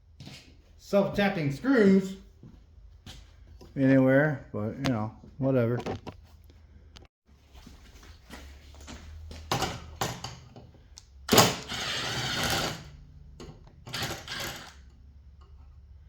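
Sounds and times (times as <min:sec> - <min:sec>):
power driver backing out screws: 0:11.3 - 0:14.9.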